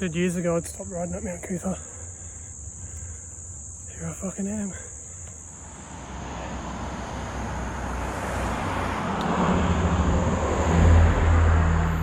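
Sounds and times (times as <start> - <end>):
vehicle passing on road: 5.4 - 12.0.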